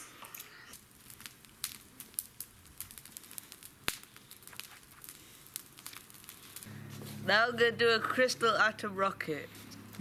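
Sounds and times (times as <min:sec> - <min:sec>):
faint crackles and clicks: 0:00.0 - 0:07.2.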